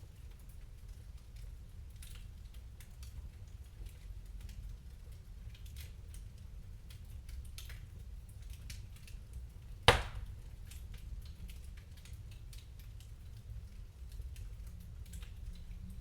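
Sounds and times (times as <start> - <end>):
wood fire crackling: 6.8 - 16.0
loud sharp pop: 9.9 - 10.3.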